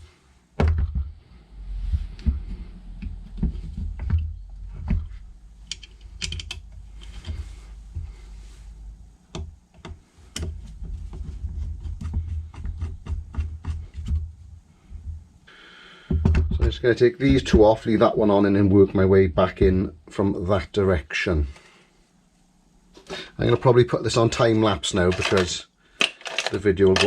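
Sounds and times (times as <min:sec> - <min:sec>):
low knocks of handled parts: 0:01.9 - 0:08.2, 0:09.3 - 0:15.2, 0:25.0 - 0:27.0
small metal parts clicking: 0:05.6 - 0:07.2, 0:25.1 - 0:27.0.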